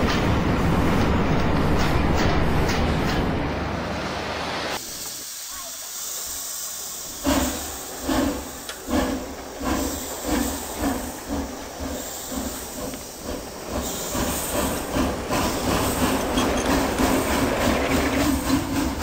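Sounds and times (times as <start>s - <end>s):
steam hissing: 3.9s - 19.0s
locomotive exhaust chuffs: 6.0s - 19.0s.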